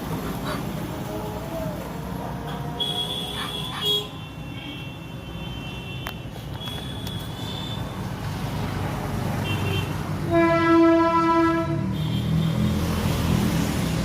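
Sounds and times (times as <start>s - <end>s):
engine and traffic rumble: 0.0s - 14.0s
vehicle horn: 2.8s - 7.9s, 9.4s - 12.6s.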